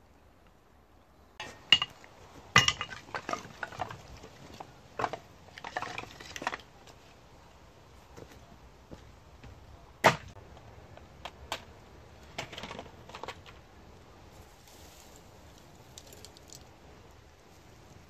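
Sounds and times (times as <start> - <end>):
firewood cracks and knocks: 1.4 - 7.0, 10.0 - 10.3.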